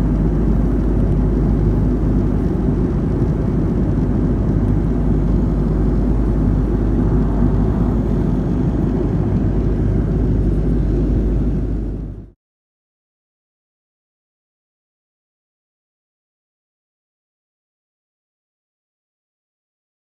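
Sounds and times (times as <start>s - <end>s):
airliner engine rumble: 0.0s - 12.4s.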